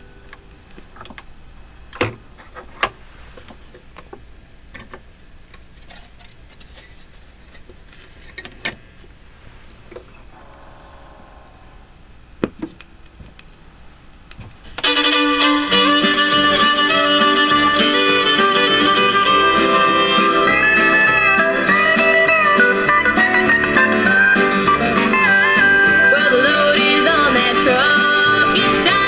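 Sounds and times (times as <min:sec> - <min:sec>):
country music with fiddle and guitar: 0:14.8 - 0:29.0.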